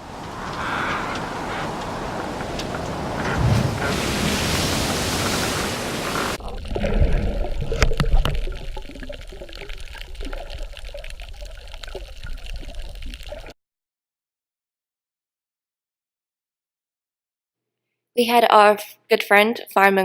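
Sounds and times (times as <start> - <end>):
rushing water: 0.0 - 13.5.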